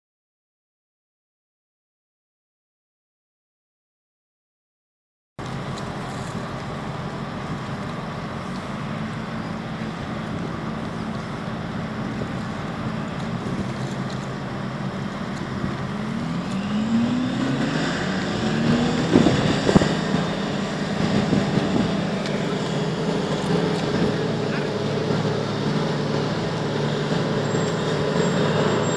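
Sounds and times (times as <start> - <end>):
engines running: 5.4 - 28.9
engine revving up: 13.1 - 28.9.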